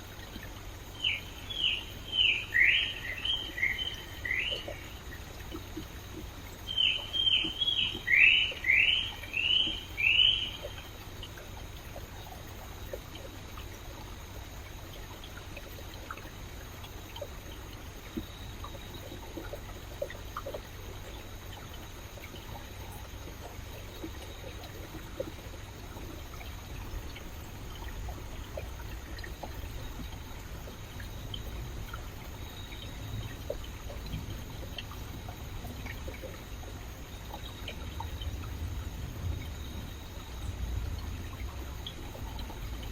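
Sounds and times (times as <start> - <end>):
stream water babbling: 0.0 - 42.9.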